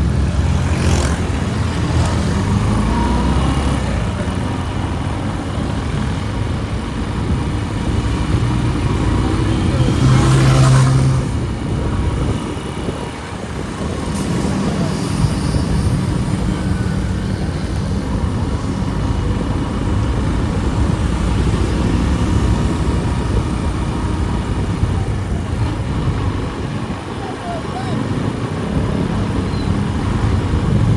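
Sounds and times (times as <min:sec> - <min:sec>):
street traffic noise: 0:00.0 - 0:30.9.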